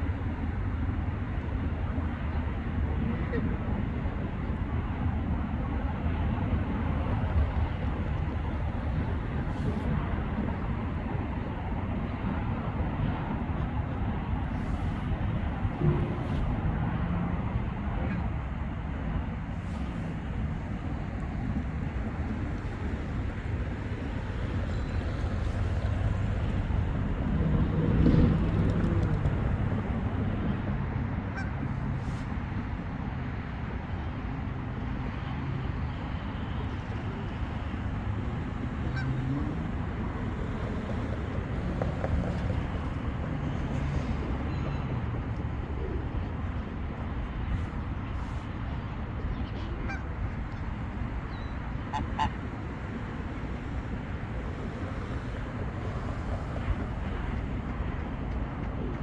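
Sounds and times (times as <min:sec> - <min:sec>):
steady low rumble: 0:00.0 - 0:32.8
geese honking: 0:49.5 - 0:50.1, 0:51.9 - 0:52.4.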